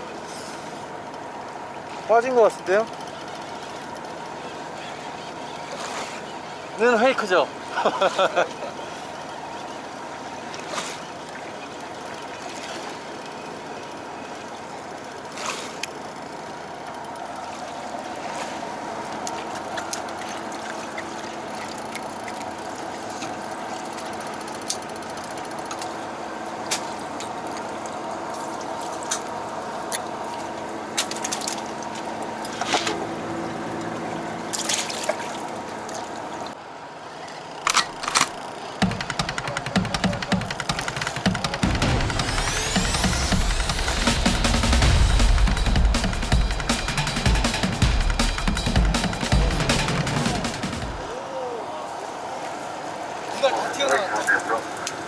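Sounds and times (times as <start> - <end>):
boat engine humming: 0.0 - 55.0
water splashing against hull: 0.1 - 36.6
sharp knocks: 38.8 - 51.1.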